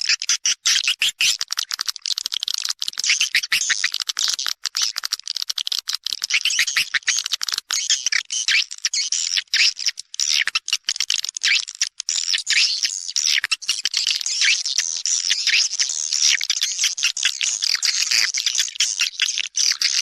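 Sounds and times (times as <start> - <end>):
swiftlets twittering: 6.3 - 7.2.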